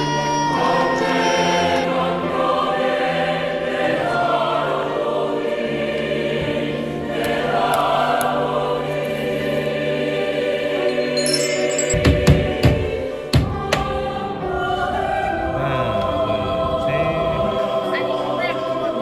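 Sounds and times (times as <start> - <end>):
choir singing slow held chords: 0.0 - 19.0.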